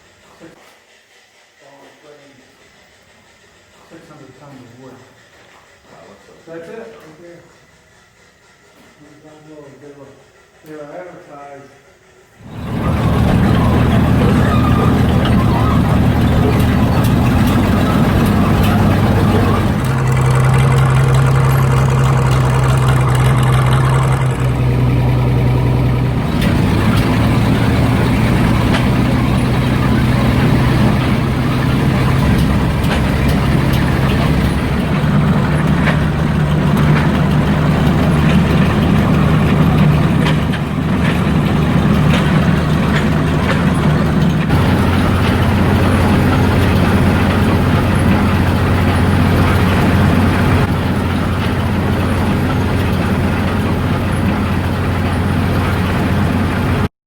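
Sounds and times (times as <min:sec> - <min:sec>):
tractor engine running: 0:12.4 - 0:56.9.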